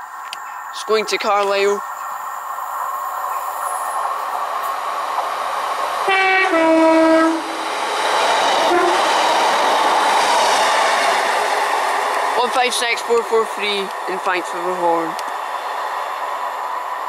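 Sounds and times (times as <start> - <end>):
train rumbling past on rails: 0.0 - 17.0
two-tone train horn: 6.1 - 7.6, 8.7 - 9.1.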